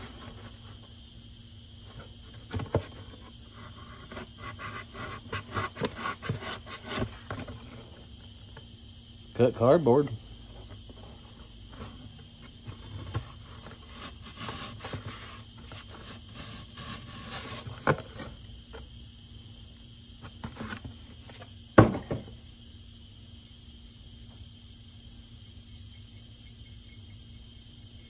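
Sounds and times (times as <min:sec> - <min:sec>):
axe cutting cardboard: 0:03.9 - 0:07.7, 0:21.8 - 0:22.3.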